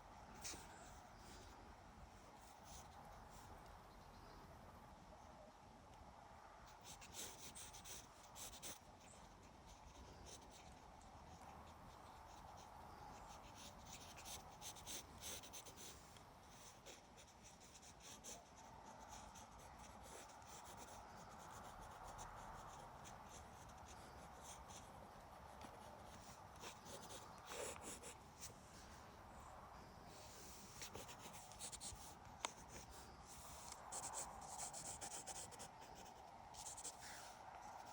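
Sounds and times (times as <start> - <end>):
pencil sketching on paper: 6.7 - 10.8, 11.5 - 24.9, 25.5 - 28.6, 30.2 - 37.9.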